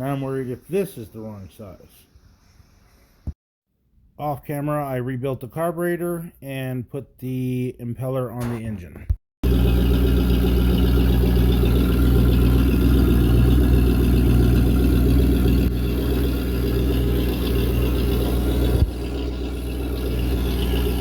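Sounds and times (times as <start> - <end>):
boat engine idling: 9.4 - 21.0.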